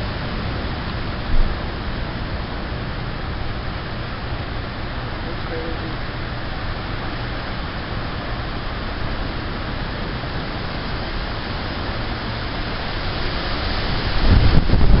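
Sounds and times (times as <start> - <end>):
strong wind rushing: 6.0 - 15.0.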